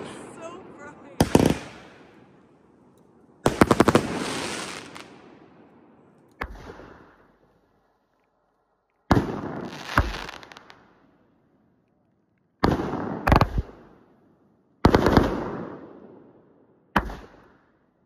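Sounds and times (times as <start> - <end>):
firework bangs: 0.0 - 2.4, 3.4 - 5.5, 6.4 - 7.4, 9.1 - 10.8, 12.6 - 13.8, 14.8 - 15.9.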